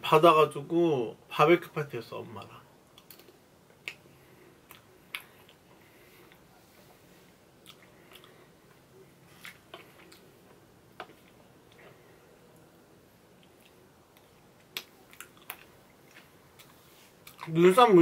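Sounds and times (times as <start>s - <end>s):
person chewing: 2.9s - 6.9s, 7.6s - 12.6s, 13.3s - 17.6s.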